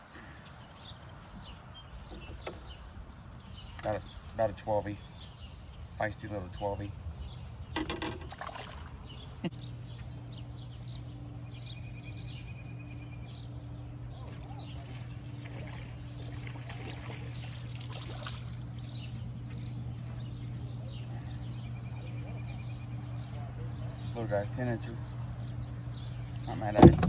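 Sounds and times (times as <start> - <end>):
steady low hum: 0.0 - 27.0
water trickling and splashing: 7.7 - 9.4, 14.2 - 20.7.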